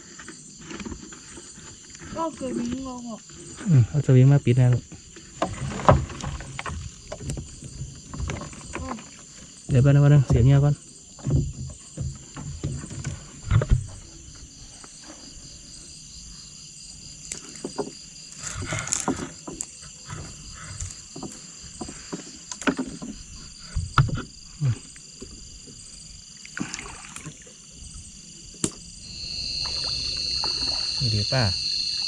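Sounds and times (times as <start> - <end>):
night insects chorus: 0.0 - 32.0
water splashing and paddling: 4.9 - 16.0, 16.8 - 32.0
knocks against boat hull: 28.6 - 28.8.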